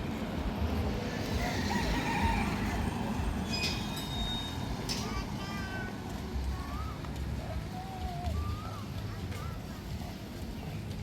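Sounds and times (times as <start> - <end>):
traffic rumble: 0.0 - 11.0
brief high squeal: 3.4 - 4.7.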